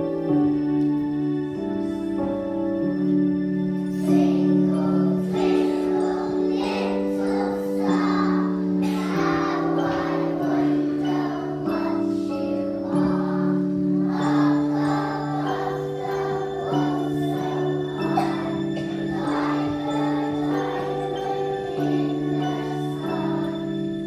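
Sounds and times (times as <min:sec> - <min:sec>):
keyboard chords: 0:00.0 - 0:24.0
children singing together: 0:03.9 - 0:24.0.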